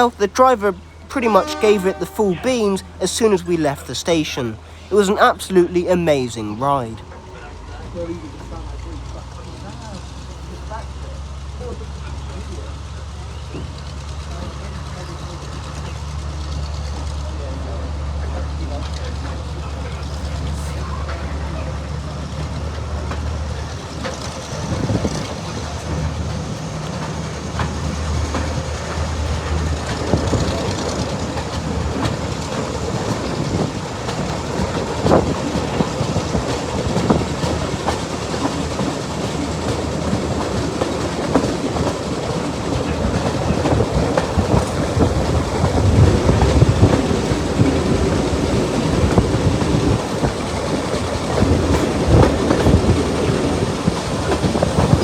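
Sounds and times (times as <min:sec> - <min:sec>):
diesel locomotive engine running: 0:00.0 - 0:55.0
train wheels clacking over rail joints: 0:22.1 - 0:55.0.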